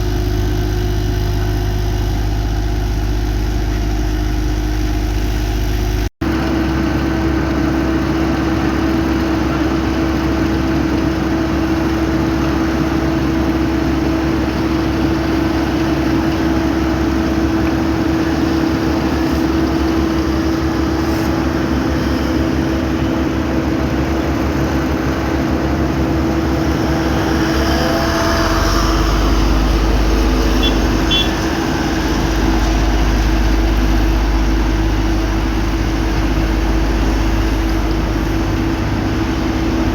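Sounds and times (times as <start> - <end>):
paving machinery engine droning: 0.0 - 39.9
low rumble: 18.8 - 39.9.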